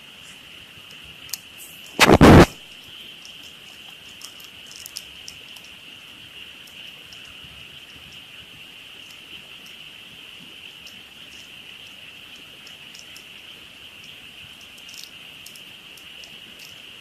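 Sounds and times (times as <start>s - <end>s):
campfire crackling: 0.7s - 17.0s
short burst of noise: 2.0s - 2.7s.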